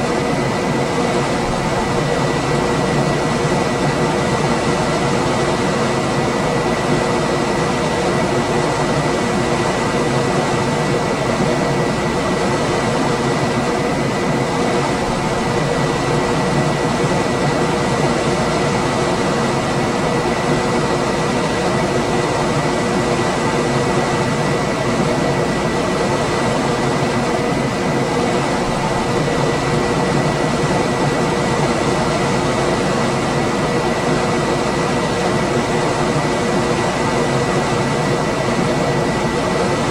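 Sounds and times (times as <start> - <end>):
air conditioner fan rushing: 0.0 - 39.9.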